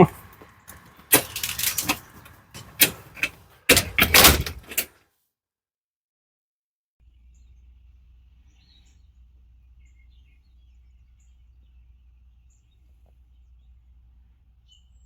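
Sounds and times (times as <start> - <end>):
steady low hum: 7.1 - 15.0.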